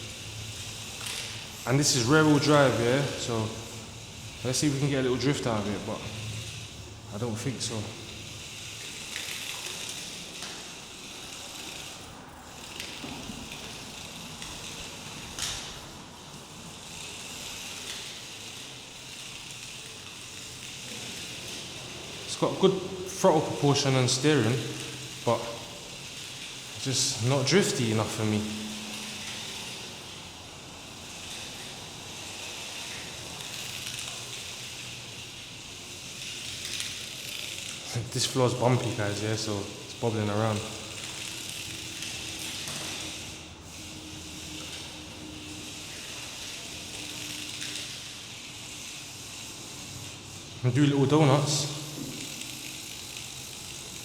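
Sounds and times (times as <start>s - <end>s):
small rc car motor hiss: 0.0s - 54.0s.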